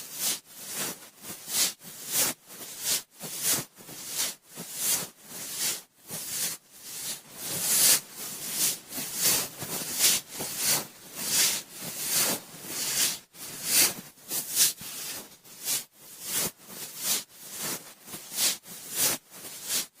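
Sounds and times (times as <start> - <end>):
cotton swab rubbing in ear: 0.2 - 20.0.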